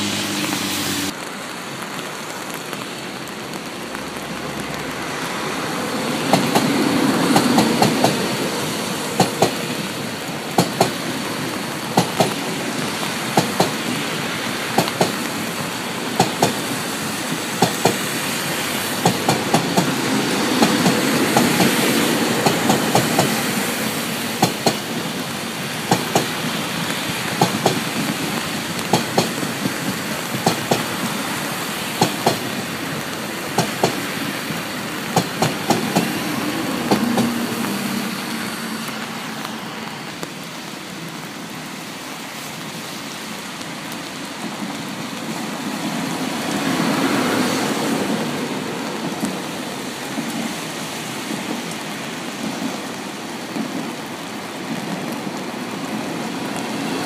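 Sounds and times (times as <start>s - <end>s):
train rumbling past: 0.0s - 57.0s
wheels clacking over rail joints: 2.3s - 39.1s.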